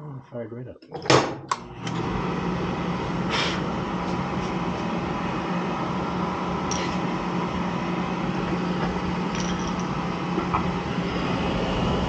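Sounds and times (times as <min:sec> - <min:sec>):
oil furnace burner roaring: 0:01.6 - 0:12.0.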